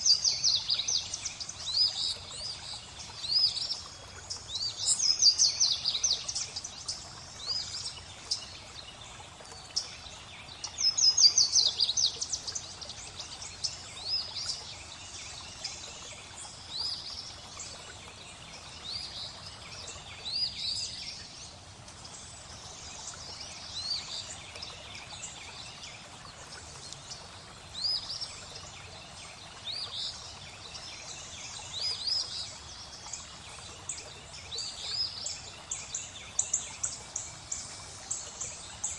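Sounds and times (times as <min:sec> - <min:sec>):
flowing water: 0:00.0 - 0:38.9.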